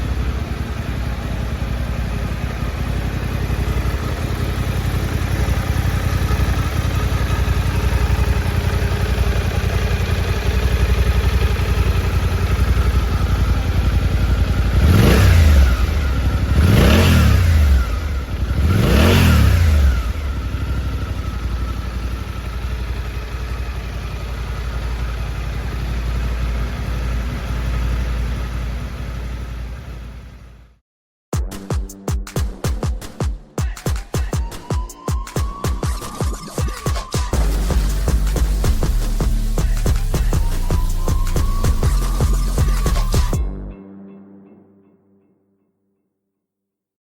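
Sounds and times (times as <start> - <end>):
engine revving: 0.0 - 28.1, 37.3 - 43.6
motorcycle engine idling: 0.0 - 30.8, 35.6 - 43.6.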